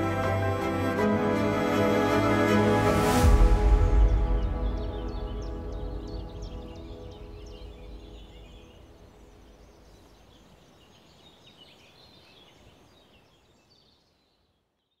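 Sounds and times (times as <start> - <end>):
songbirds chirping and trilling: 3.1 - 15.0.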